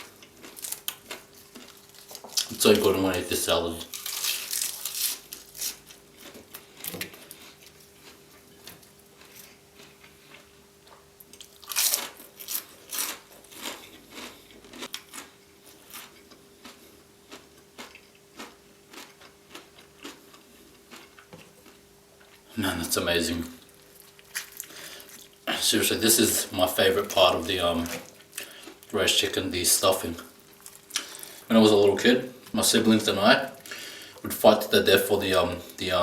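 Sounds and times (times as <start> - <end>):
person chewing crunchy food: 0.0 - 2.9, 3.9 - 22.5, 23.5 - 29.2, 30.3 - 31.5.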